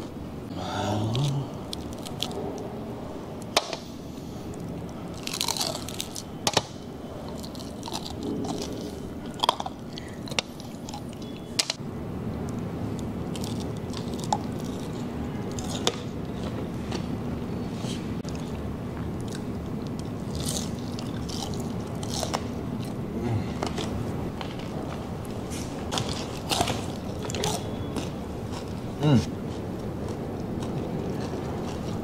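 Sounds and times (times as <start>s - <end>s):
chewing and biting crispy pork: 1.1s - 2.5s, 4.5s - 6.4s, 7.2s - 11.5s, 12.9s - 16.6s, 18.2s - 23.1s, 25.8s - 32.0s
crisp skin crunching: 1.2s - 2.5s, 4.6s - 6.6s, 7.2s - 11.7s, 13.3s - 16.6s, 19.2s - 23.0s.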